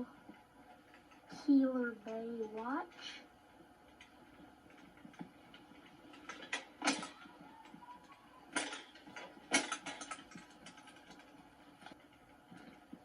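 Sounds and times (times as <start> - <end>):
rattle of small clicks: 0.0 - 3.2, 3.8 - 13.0
sharp clicks and knocks: 3.8 - 13.0.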